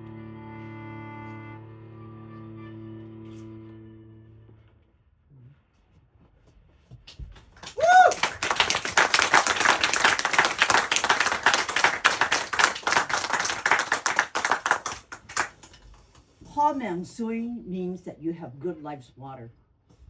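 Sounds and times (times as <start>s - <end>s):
short whoop: 7.6s - 8.4s
audience applause: 7.6s - 15.9s.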